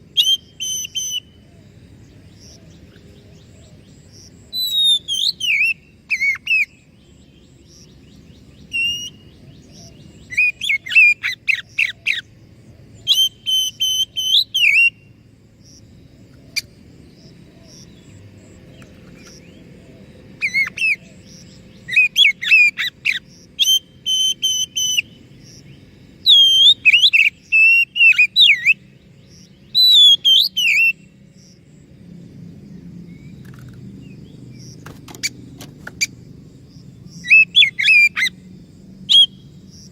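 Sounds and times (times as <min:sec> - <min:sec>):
low background noise: 0:00.0 - 0:39.9
bird whistling and chattering song: 0:00.1 - 0:01.4, 0:04.5 - 0:06.9, 0:08.6 - 0:12.3, 0:13.0 - 0:15.1, 0:20.4 - 0:25.6, 0:26.2 - 0:31.1, 0:37.1 - 0:38.4, 0:39.1 - 0:39.9.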